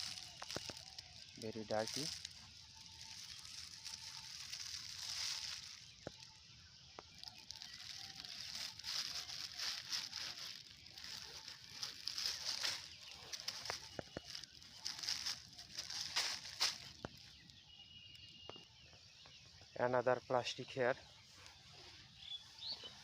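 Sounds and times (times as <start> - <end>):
plastic rustling and crackling: 0.0 - 17.6.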